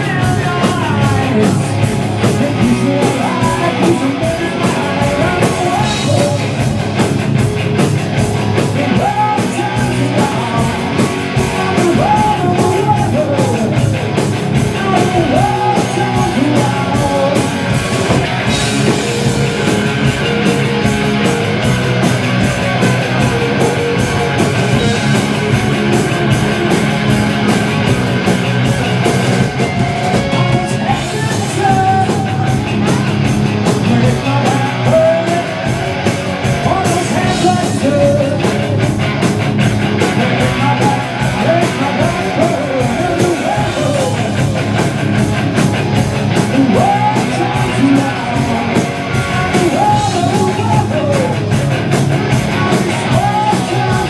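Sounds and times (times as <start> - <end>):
person singing: 0.0 - 6.6, 8.7 - 13.8, 14.7 - 17.6, 30.1 - 33.2, 33.8 - 36.0, 36.6 - 38.8, 40.1 - 44.4, 46.5 - 51.6, 52.4 - 54.0
bass guitar: 0.0 - 54.0
electric guitar: 0.0 - 54.0
steady drum beat: 0.0 - 54.0.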